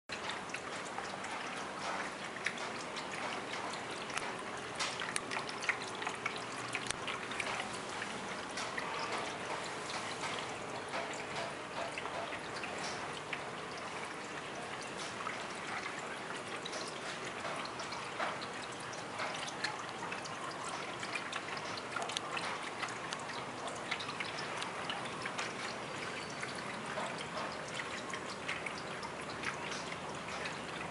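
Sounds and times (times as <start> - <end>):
water drips and splashes: 0.1 - 30.9
water trickling in fountain: 0.1 - 30.9.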